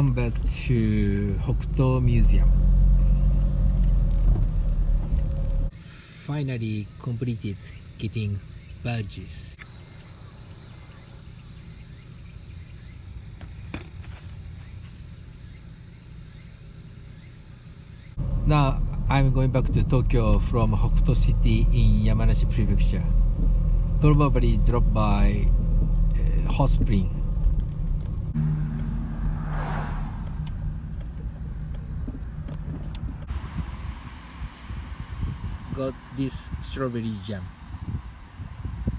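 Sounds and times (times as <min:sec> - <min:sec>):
low background rumble: 0:00.0 - 0:05.7, 0:18.2 - 0:38.8
car engine running: 0:00.0 - 0:05.8, 0:14.4 - 0:37.8
insects trilling: 0:00.0 - 0:38.9
vehicle passing whoosh: 0:26.9 - 0:34.6.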